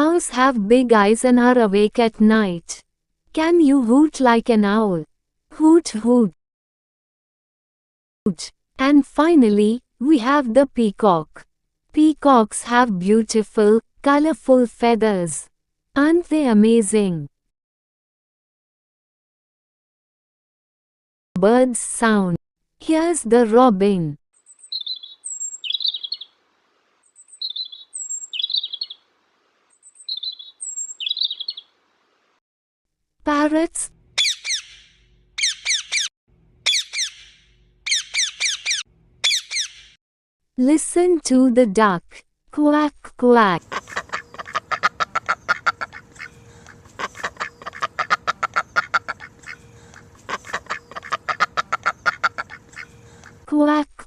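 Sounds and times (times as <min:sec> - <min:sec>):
robin singing: 0:24.4 - 0:26.4, 0:27.0 - 0:29.1, 0:29.7 - 0:31.8, 0:34.2 - 0:36.1, 0:36.7 - 0:40.0, 0:45.2 - 0:53.4
duck quacking: 0:43.7 - 0:53.4.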